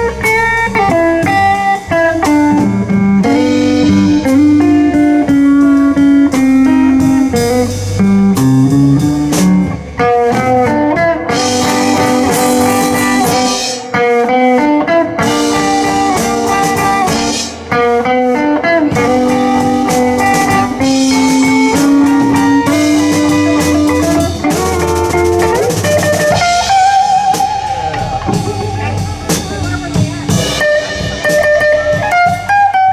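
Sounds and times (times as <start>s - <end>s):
bass: 0.0s - 32.9s
drum kit: 0.0s - 32.9s
lead guitar: 0.0s - 32.9s.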